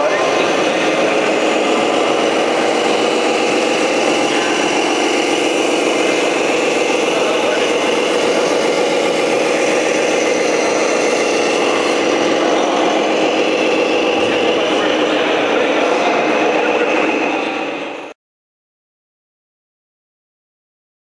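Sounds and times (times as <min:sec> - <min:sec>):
model truck mechanical drone: 0:00.0 - 0:18.2.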